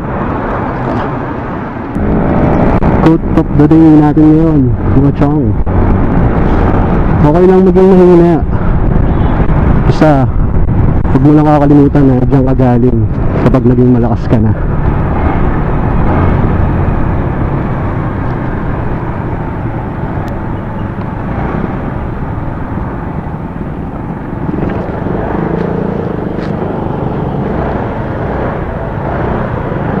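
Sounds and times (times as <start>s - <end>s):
wind rumble on microphone: 0.0s - 30.0s
motorcycle engine: 14.6s - 30.0s.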